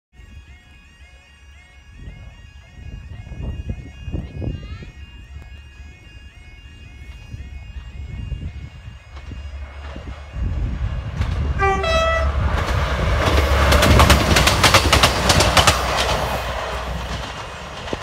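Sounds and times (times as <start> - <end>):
diesel engines rumbling: 0.2 - 18.0
two-tone train horn: 11.5 - 12.6
wheels clattering over rail joints: 12.4 - 18.0.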